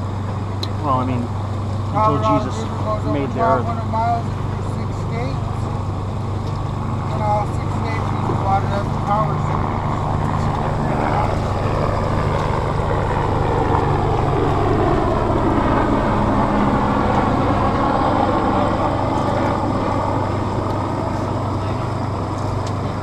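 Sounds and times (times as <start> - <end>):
rushing wind: 0.0 - 23.0.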